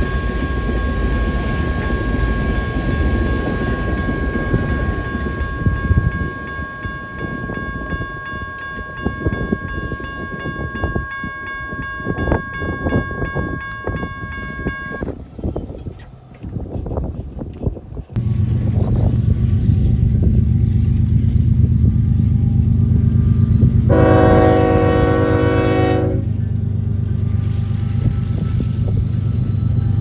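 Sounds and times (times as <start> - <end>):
steady high tone: 0.0 - 15.1
train rumbling past: 0.0 - 30.0
wheels clacking over rail joints: 14.6 - 18.8.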